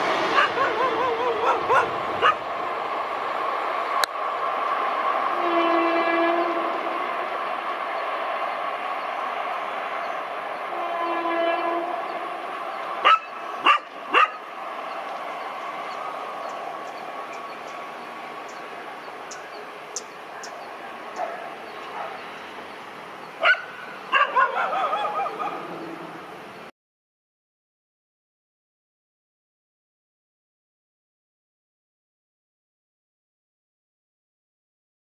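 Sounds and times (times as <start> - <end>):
train rumble: 0.0 - 26.7
dog barking: 0.4 - 2.4, 13.0 - 14.4, 21.2 - 22.2, 23.4 - 25.8.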